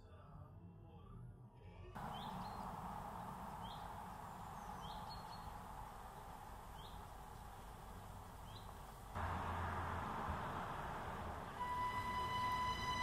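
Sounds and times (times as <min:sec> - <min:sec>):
outdoor background noise: 0:00.0 - 0:13.0
small bird chirping: 0:03.6 - 0:09.1.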